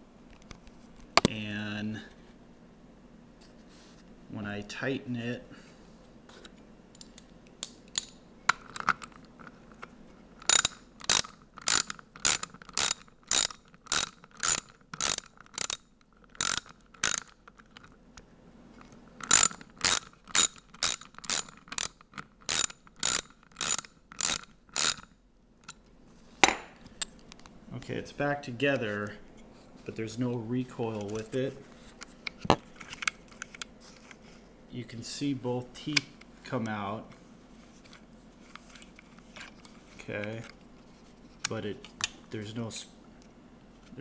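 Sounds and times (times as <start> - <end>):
ratchet wrench clicking: 10.4 - 15.8, 16.4 - 17.4, 19.2 - 25.0.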